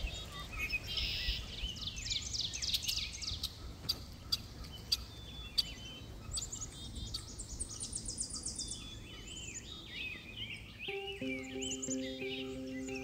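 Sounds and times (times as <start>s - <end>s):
birds chirping and singing: 4.3s - 13.0s.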